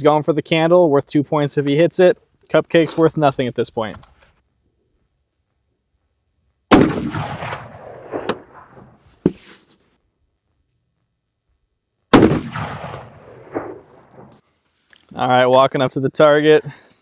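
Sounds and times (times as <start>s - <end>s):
rifle shots with echo: 6.7s - 9.0s, 12.1s - 14.4s.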